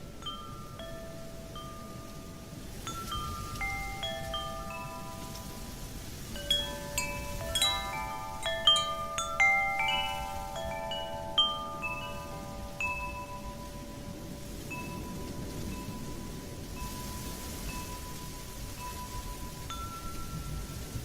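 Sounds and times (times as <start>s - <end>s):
wind chimes ringing: 0.0s - 21.0s.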